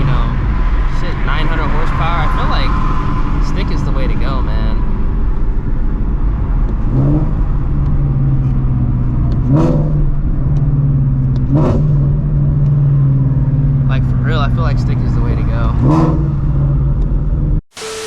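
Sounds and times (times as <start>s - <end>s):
car engine revving at cruise: 0.0s - 18.0s.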